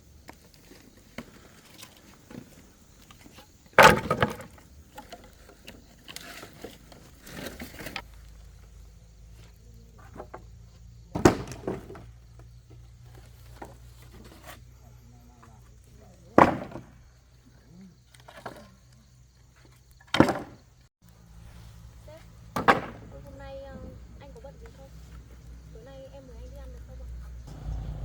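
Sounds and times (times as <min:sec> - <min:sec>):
wood clattering: 0:03.1 - 0:08.0, 0:11.1 - 0:12.1.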